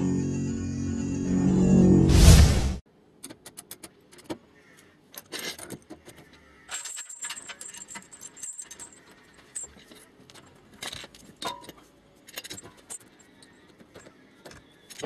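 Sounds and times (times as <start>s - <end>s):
light metallic clicks and clinks: 6.6s - 15.0s.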